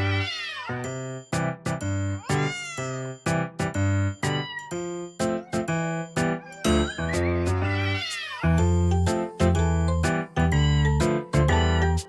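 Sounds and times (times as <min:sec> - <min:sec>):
kitten meowing: 0:00.0 - 0:00.7, 0:02.2 - 0:03.0, 0:04.3 - 0:08.7, 0:10.4 - 0:12.0
background music repeated notes: 0:00.0 - 0:12.0.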